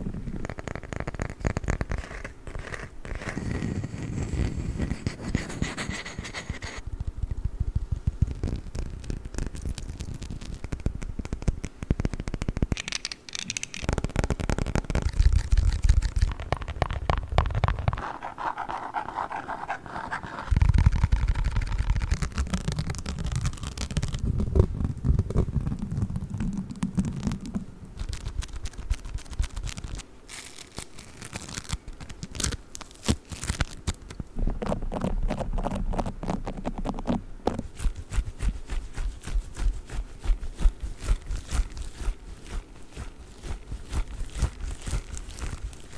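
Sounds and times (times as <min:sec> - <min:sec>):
scratching on objects: 0:00.0 - 0:07.1, 0:07.7 - 0:45.9.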